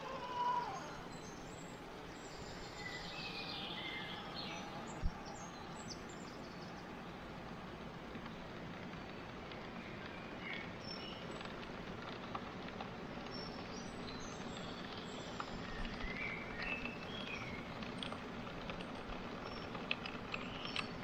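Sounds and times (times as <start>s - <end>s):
small birds chirping: 0.0s - 18.4s, 19.0s - 21.0s
outdoor background hiss: 0.0s - 21.0s
faint clicks: 4.6s - 21.0s.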